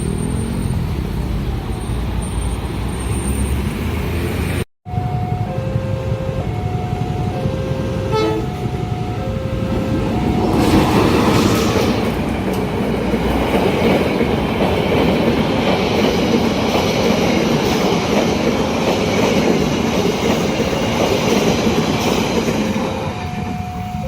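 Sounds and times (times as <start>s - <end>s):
train rumbling past: 0.0s - 24.0s
two-tone crossing warning signal: 4.9s - 18.9s, 19.8s - 24.0s.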